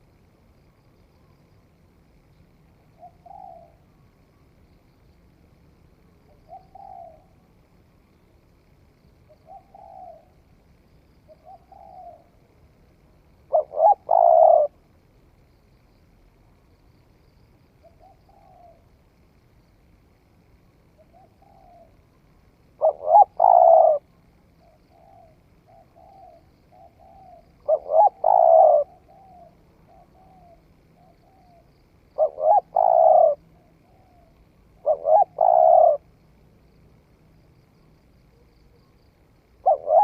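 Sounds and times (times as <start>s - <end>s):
dove cooing: 2.9s - 4.0s, 6.3s - 7.5s, 9.3s - 10.5s, 11.3s - 14.9s, 17.8s - 18.9s, 20.9s - 22.1s, 22.7s - 36.1s, 38.3s - 40.0s.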